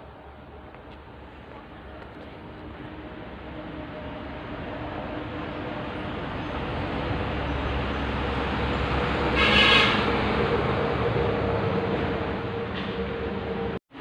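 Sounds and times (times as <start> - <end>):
short horn toot: 9.4 - 10.1.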